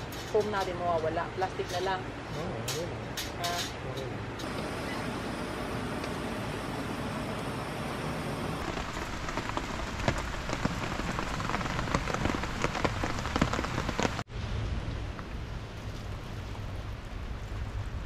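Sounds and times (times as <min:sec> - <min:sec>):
rain falling: 0:00.0 - 0:18.0
raindrop hits: 0:08.5 - 0:18.0.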